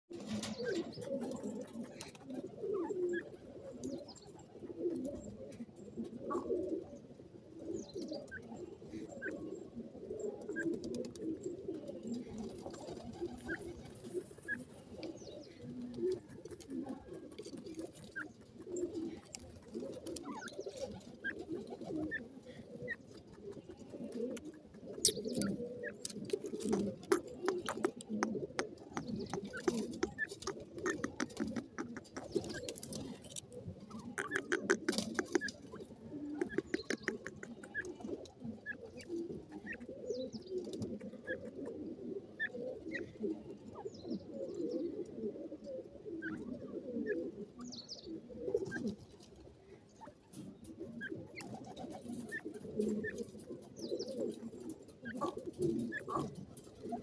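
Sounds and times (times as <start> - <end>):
low warbling bird calls: 5.1 - 45.0, 50.0 - 57.0
quick clicks and scratches: 23.1 - 37.9.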